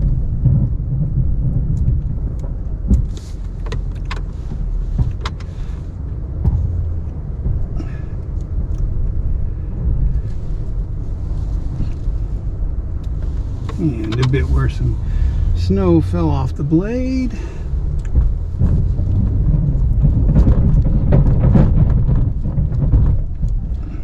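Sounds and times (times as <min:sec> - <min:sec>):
pickup engine rumbling: 0:00.0 - 0:24.0
plow clicks and knocks: 0:01.7 - 0:05.8.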